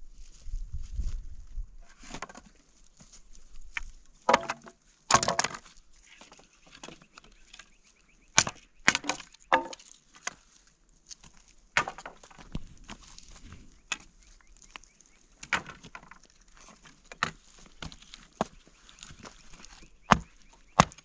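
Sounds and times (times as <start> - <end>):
wood cracking and knocking: 2.0 - 2.6, 3.7 - 7.7, 8.4 - 10.4, 11.2 - 14.8, 15.4 - 21.0.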